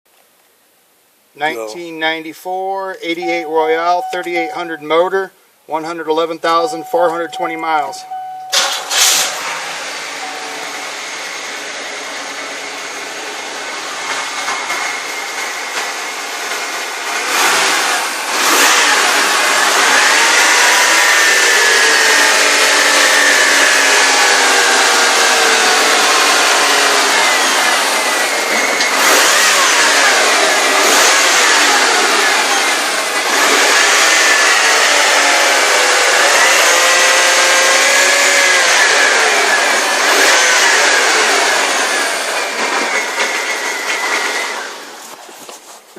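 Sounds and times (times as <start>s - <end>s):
car engine revving: 8.5s - 45.2s.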